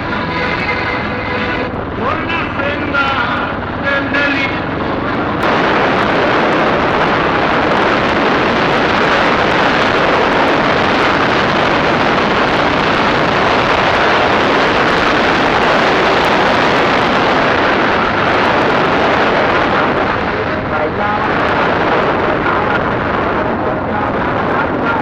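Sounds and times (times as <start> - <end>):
dirt bike engine running: 0.0 - 20.2
wind rushing on microphone: 0.0 - 25.0.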